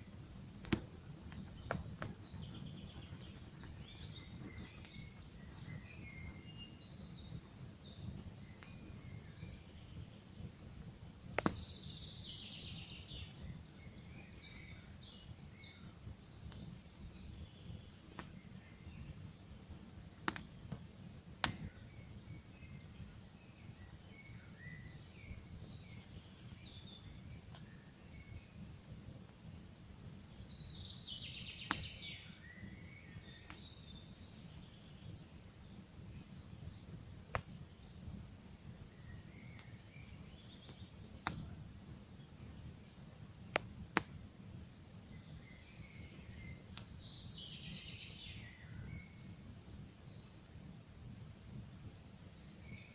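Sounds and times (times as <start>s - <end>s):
songbirds chirping: 0.0s - 52.9s
bird song falling in pitch: 0.1s - 38.0s, 38.6s - 44.2s, 45.0s - 52.9s
campfire crackling: 20.2s - 21.9s, 36.6s - 38.6s, 40.7s - 42.0s.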